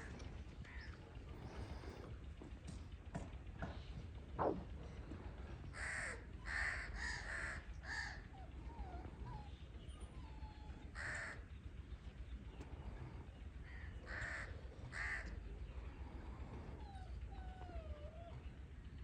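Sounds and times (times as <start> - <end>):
crows cawing: 0.0 - 1.0, 5.7 - 8.4, 11.0 - 11.5, 13.6 - 15.4.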